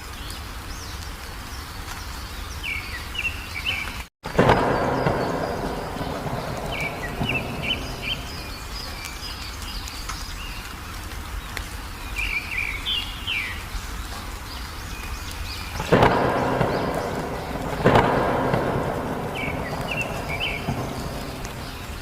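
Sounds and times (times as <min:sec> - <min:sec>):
rain rumble: 0:00.0 - 0:22.0
songbird chirping: 0:00.0 - 0:22.0
thunderclap: 0:04.2 - 0:09.7, 0:15.6 - 0:22.0.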